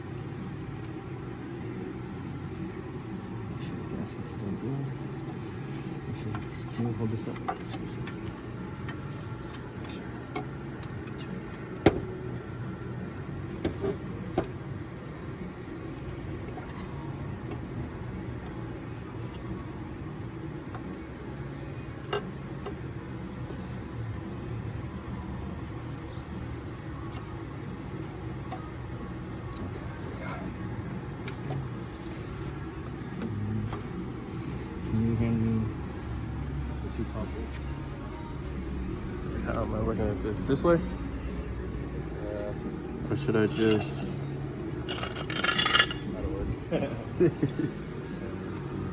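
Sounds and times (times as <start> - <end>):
low background hum: 0.0 - 48.9
metal tools clinking: 43.5 - 44.2, 44.9 - 46.1.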